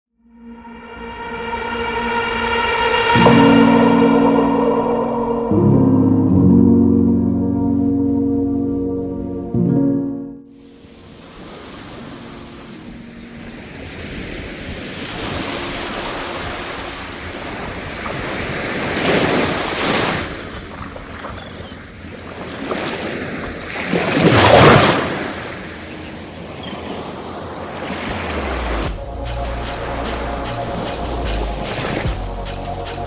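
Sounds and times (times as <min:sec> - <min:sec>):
sea waves washing on shore: 0:10.6 - 0:33.0
waves breaking: 0:10.6 - 0:33.0
wind buffeting microphone: 0:12.8 - 0:33.0.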